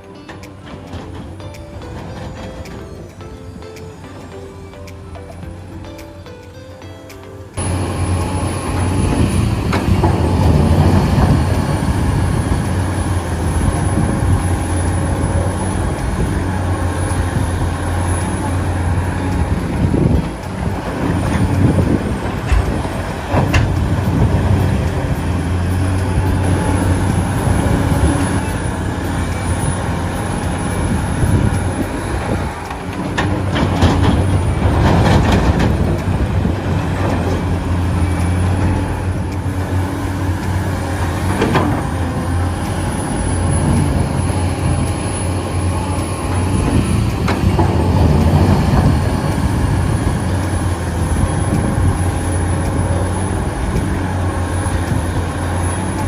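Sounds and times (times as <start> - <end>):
knocks and clatter: 0.0 - 4.4, 17.1 - 29.7, 30.4 - 42.4
heavy machinery engine humming: 0.0 - 56.0.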